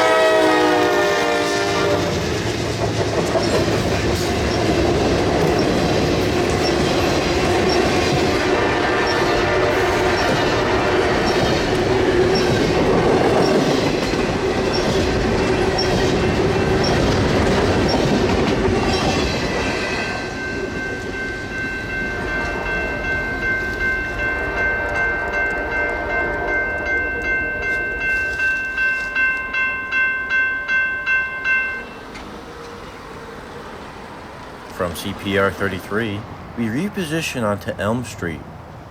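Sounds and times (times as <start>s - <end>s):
freight train rolling past: 0.0s - 38.9s
wheels clicking over rail joints: 2.1s - 29.6s
crossing warning bell: 3.3s - 33.5s.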